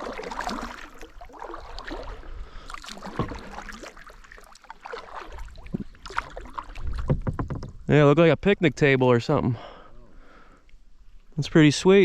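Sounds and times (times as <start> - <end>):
kayak paddle strokes in water: 0.0 - 7.8.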